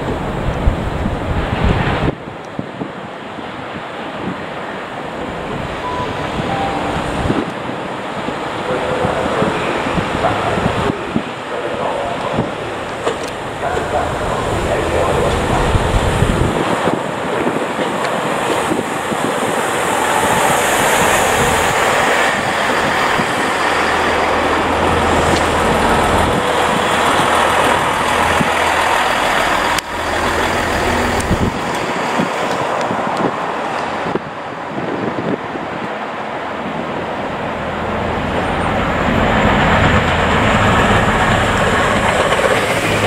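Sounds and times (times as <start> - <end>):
wheels rushing on rail: 0.0 - 43.0
diesel engines humming low: 8.7 - 16.5, 19.8 - 32.2.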